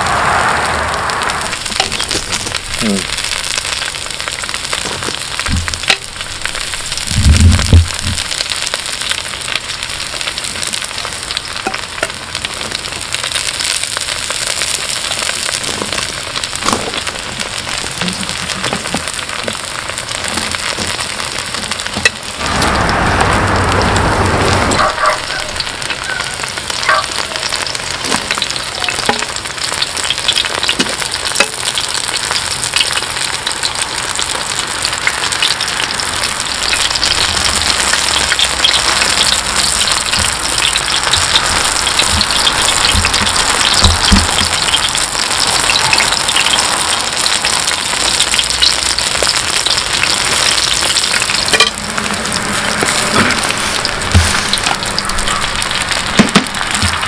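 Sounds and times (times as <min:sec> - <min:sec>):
rush of noise: 0:00.0 - 0:03.4, 0:22.2 - 0:26.7, 0:50.4 - 0:57.0
food sizzling in oil: 0:00.0 - 0:57.0
sharp crackles: 0:00.0 - 0:57.0.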